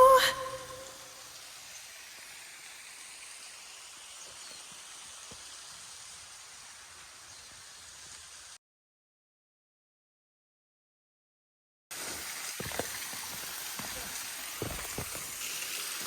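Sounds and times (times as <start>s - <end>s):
faint outdoor hiss: 0.0s - 8.6s, 12.0s - 16.0s.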